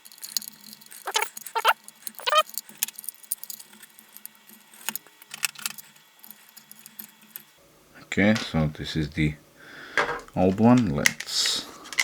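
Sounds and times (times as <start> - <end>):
plastic and metal parts clicking: 0.0 - 7.5, 9.9 - 12.0.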